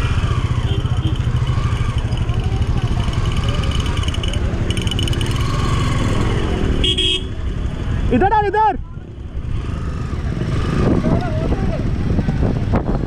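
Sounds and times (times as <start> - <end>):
crowd chatter: 0.6 - 8.2
wind buffeting microphone: 9.6 - 13.0.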